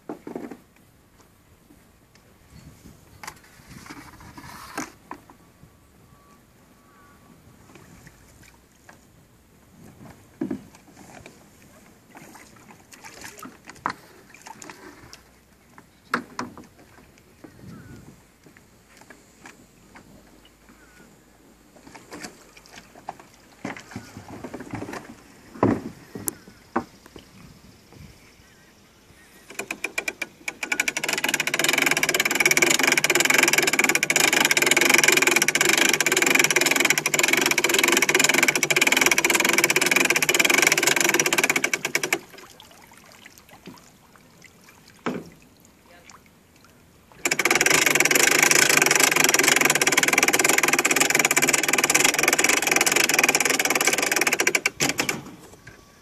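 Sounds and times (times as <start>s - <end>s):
quick clicks: 29.4s - 42.3s, 47.2s - 55.3s.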